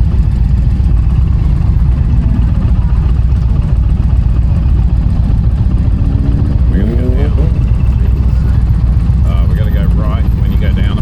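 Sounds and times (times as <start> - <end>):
motorcycle engine rumbling: 0.0 - 11.0
wind rush: 1.1 - 4.4.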